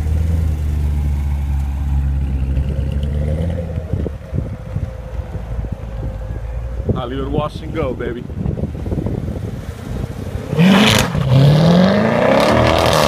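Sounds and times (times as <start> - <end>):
car engine exhaust drone: 0.0 - 13.0.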